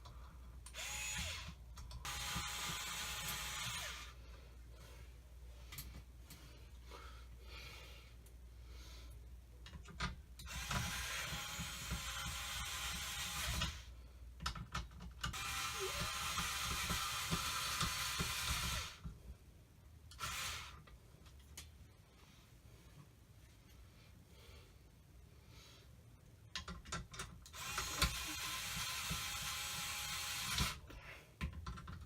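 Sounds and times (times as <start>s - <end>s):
screwdriver driving screws: 0.7s - 4.1s, 9.9s - 13.8s, 14.7s - 19.0s, 26.6s - 30.8s.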